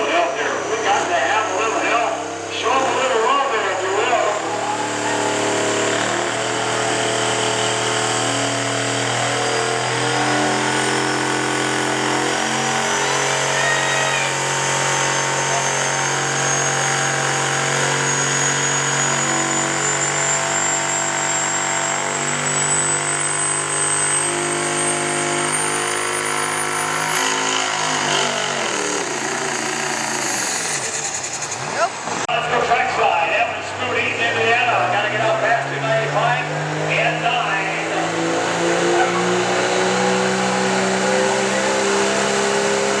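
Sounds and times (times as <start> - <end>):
diesel truck engine at high revs: 0.0 - 43.0.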